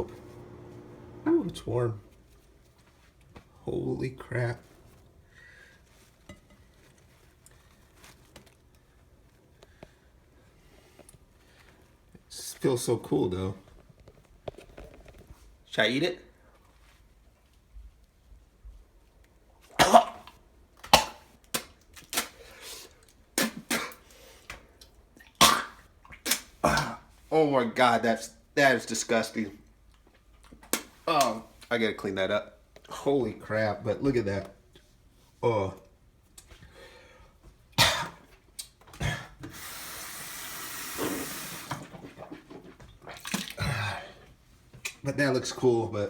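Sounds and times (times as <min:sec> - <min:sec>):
man coughing hard: 0:19.8 - 0:20.2, 0:37.8 - 0:38.2
kitchen tap turned on: 0:39.4 - 0:42.1
water running into sink: 0:39.5 - 0:43.6.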